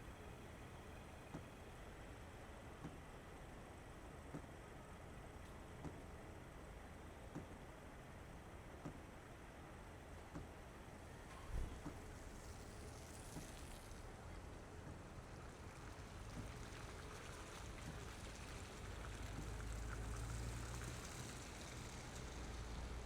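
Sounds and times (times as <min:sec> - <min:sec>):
car engine and road rumble: 0:10.0 - 0:23.0.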